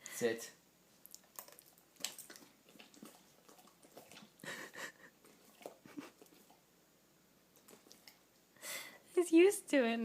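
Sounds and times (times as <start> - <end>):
dog chewing wetly: 1.1 - 6.7, 7.5 - 8.4.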